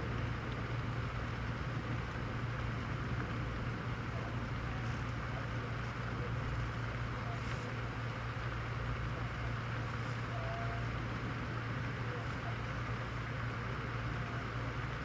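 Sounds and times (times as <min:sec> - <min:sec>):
steady rainfall: 0:07.8 - 0:15.0.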